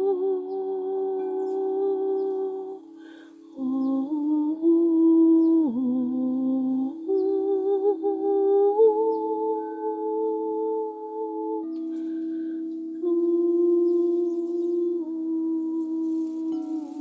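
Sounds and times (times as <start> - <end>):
person humming: 0.0 - 17.0
singing bowl ringing: 16.3 - 17.0.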